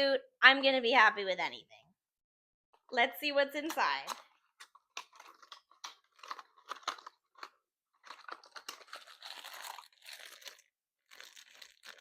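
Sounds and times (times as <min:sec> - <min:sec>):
packaging crinkling: 0:04.3 - 0:12.0.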